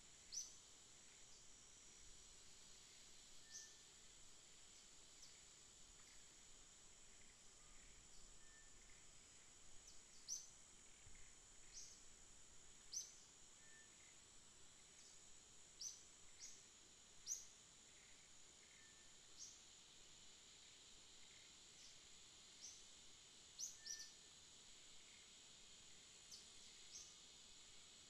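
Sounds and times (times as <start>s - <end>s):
steady high-pitched whine: 0.0s - 28.0s
faint bird chirps: 0.2s - 1.6s, 3.3s - 4.1s, 7.0s - 12.1s, 12.8s - 19.6s, 23.5s - 24.4s, 26.2s - 27.2s.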